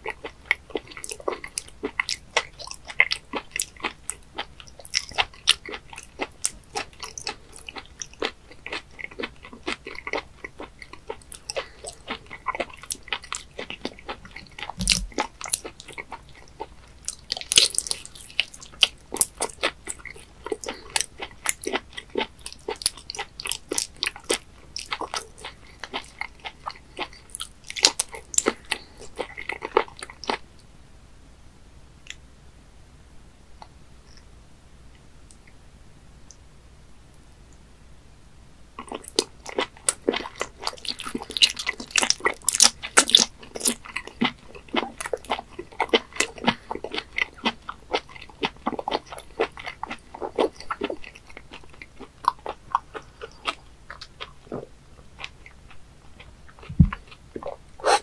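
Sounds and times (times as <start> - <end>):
wet chewing sounds: 0.0 - 30.4, 38.8 - 58.0
low thump: 14.8 - 15.2, 56.7 - 57.0.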